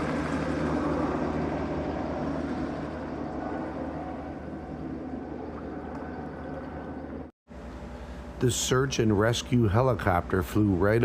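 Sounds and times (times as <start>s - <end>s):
helicopter flying overhead: 0.0s - 7.3s.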